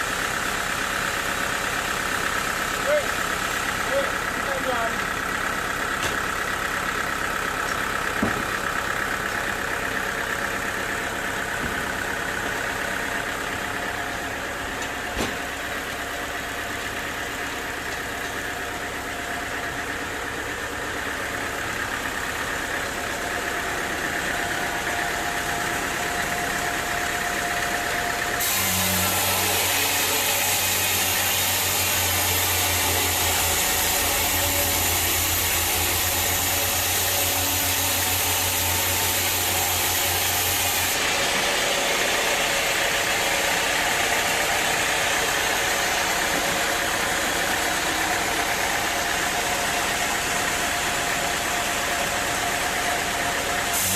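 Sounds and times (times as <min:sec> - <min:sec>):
sawmill machinery running: 0:00.0 - 0:53.9
machine hum: 0:04.6 - 0:53.9
sharp knocks: 0:08.2 - 0:08.6.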